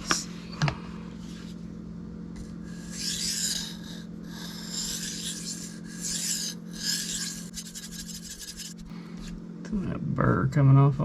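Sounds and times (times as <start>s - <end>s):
knife on sharpening stone: 2.7s - 8.9s.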